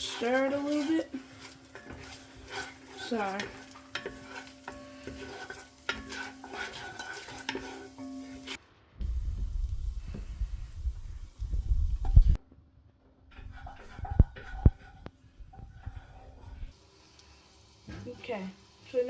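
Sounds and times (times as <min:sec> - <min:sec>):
utensil scraping a pan: 0:00.0 - 0:09.2, 0:09.8 - 0:12.4, 0:13.3 - 0:16.8
butter sizzling in a pan: 0:00.0 - 0:12.4, 0:13.3 - 0:19.0
low rumble: 0:09.0 - 0:12.4.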